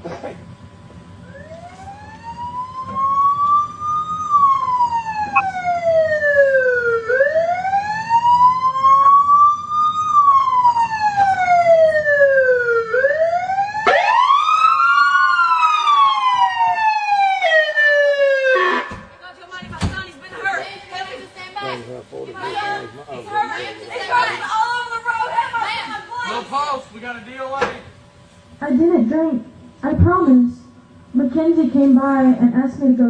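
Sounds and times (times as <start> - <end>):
emergency siren wailing: 1.2 - 19.1
second siren wailing: 1.2 - 19.2.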